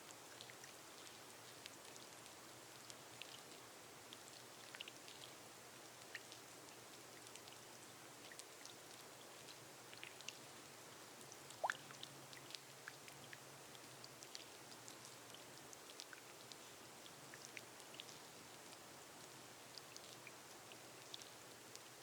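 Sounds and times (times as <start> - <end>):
soft rain on a glass roof: 0.0 - 22.0
raindrops ticking: 11.2 - 21.9.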